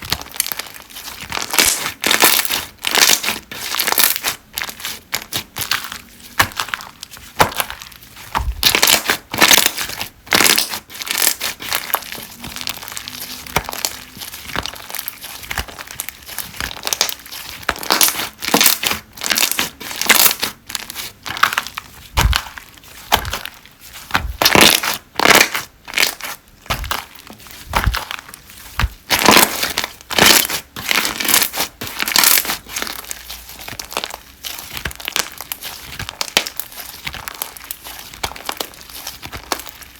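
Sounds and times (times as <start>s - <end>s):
slime crackling and popping: 0.0s - 39.9s.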